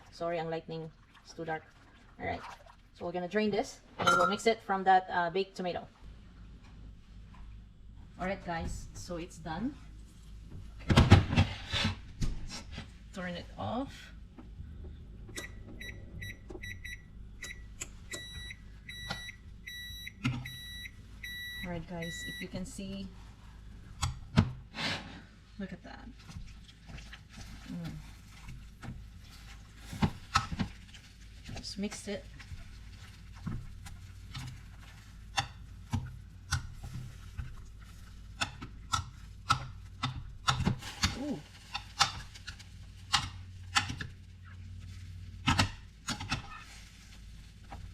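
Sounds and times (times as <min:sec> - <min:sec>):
steady low hum: 0:00.0 - 0:47.9
timer alarm beeps: 0:15.4 - 0:22.6.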